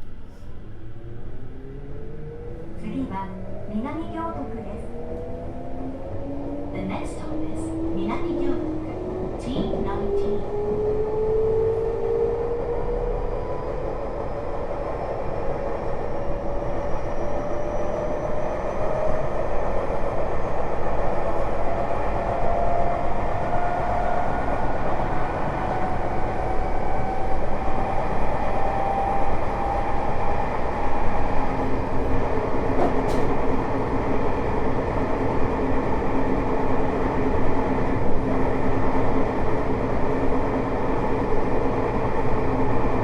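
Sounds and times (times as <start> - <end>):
wheel and rail rumble: 20.9 - 43.0.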